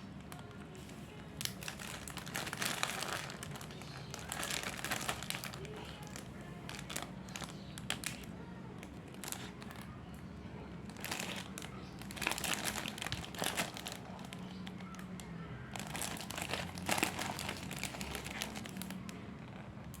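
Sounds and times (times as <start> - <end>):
plastic wrappers crinkling: 1.3 - 9.9, 10.8 - 19.2.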